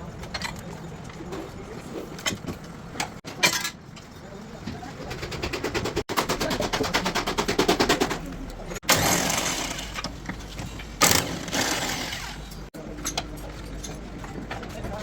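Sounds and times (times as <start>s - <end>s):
power tool rattling: 5.1s - 10.1s, 11.0s - 12.6s.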